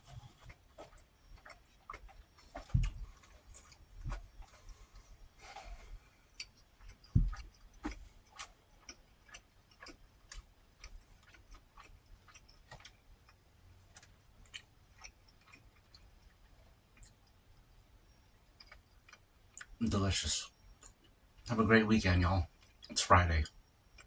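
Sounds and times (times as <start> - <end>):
person chewing food: 0.0 - 19.8, 20.6 - 21.5, 22.5 - 24.0
dull thump: 2.6 - 3.2, 7.1 - 8.0.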